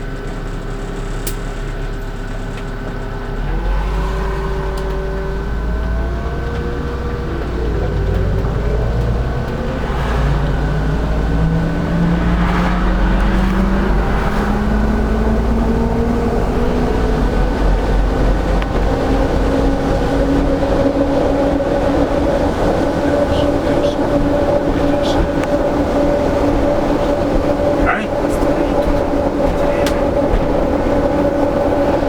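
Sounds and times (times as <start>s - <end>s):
bus engine droning: 0.0s - 32.0s
road noise: 0.0s - 32.0s.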